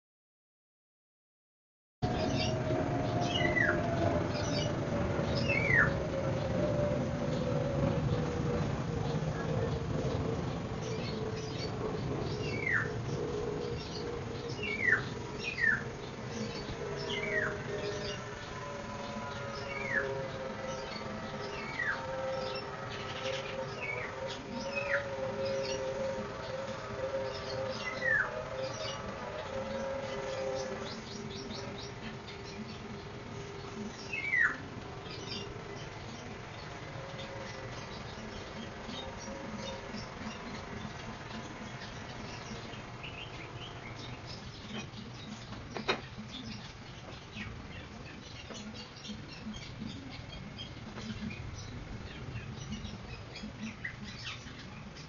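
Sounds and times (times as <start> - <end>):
high twittering: 2.0 - 55.0
small birds chirping: 2.0 - 55.0
steady low hum: 2.0 - 55.0.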